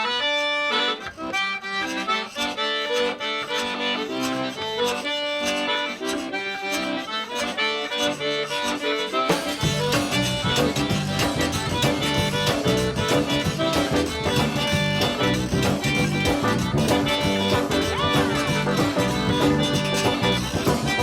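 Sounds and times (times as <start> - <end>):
accordion playing lively tune: 0.0 - 21.0
band with bass line: 9.3 - 21.0.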